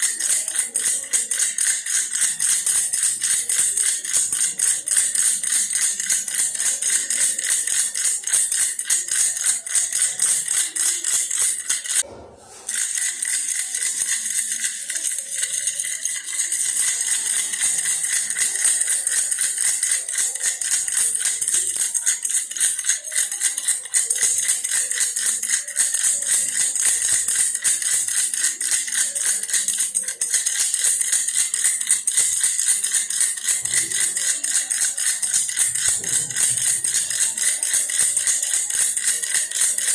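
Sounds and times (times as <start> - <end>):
toy rattle shaken rapidly: 0.0 - 39.9.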